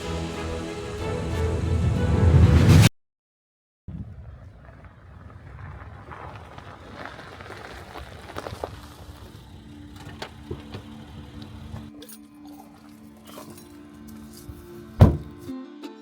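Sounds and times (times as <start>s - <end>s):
low rumble: 1.0s - 2.9s
crackles and clicks: 3.9s - 12.0s.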